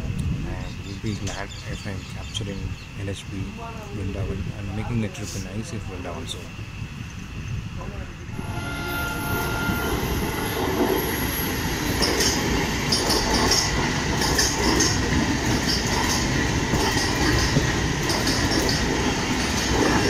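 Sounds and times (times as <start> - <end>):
train wheels rumbling on rail: 0.0 - 20.0
high wheel squeal: 8.4 - 13.0.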